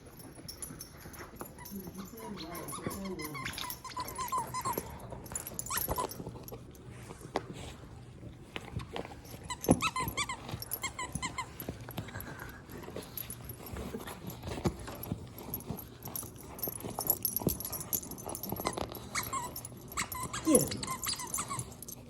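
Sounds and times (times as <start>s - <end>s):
dog chewing a toy: 0.0s - 22.0s
squeaky toy squeaks: 2.1s - 4.8s, 9.5s - 11.5s, 19.1s - 21.8s.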